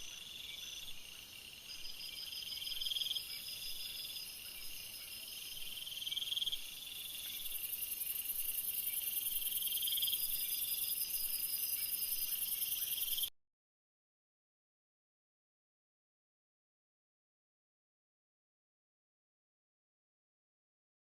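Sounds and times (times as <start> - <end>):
insects trilling: 0.0 - 13.3.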